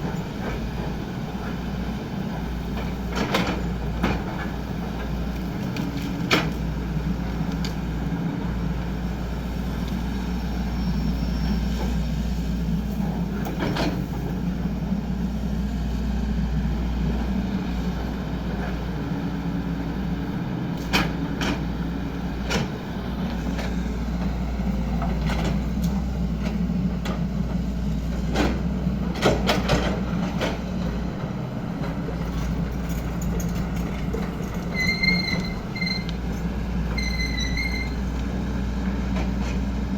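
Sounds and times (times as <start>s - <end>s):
excavator diesel engine running: 0.0s - 39.9s
machine knocks and clanks: 28.2s - 30.7s.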